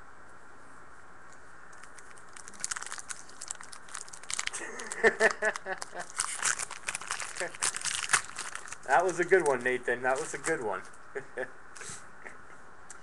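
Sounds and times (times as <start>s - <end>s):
foil wrapper crinkling and tearing: 1.8s - 11.0s.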